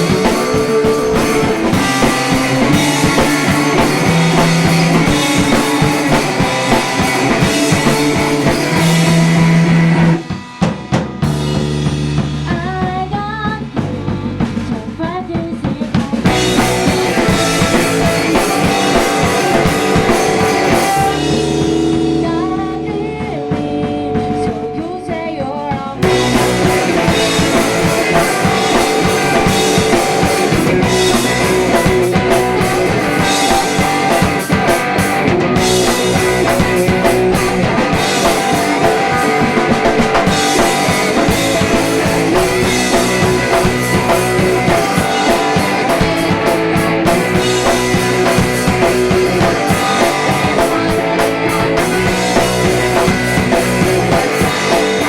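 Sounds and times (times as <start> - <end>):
bass guitar: 0.0 - 55.0
drum kit: 0.0 - 55.0
electric guitar: 0.0 - 55.0
woman singing: 12.5 - 17.4, 20.6 - 26.4.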